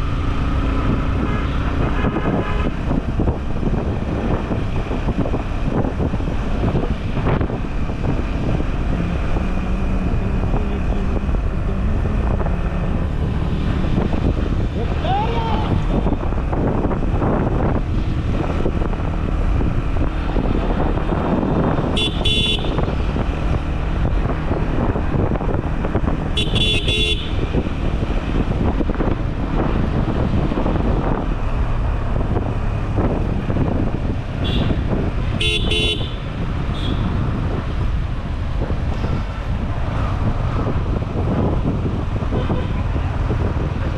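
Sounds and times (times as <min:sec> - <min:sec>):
motorcycle engine rumble: 0:00.0 - 0:43.9
vehicle horns tooting: 0:01.2 - 0:02.8, 0:21.9 - 0:22.9, 0:26.4 - 0:27.4, 0:34.4 - 0:37.1, 0:42.3 - 0:42.9.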